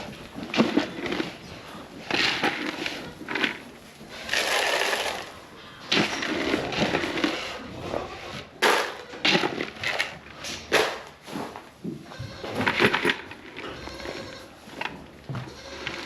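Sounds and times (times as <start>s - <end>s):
dry grain feed being poured: 4.1s - 5.4s.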